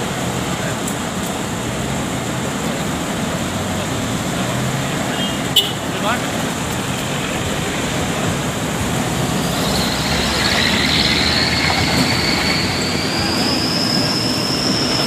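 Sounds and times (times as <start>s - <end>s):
heavy truck running: 0.0s - 15.0s
high thin squeal: 9.3s - 15.0s.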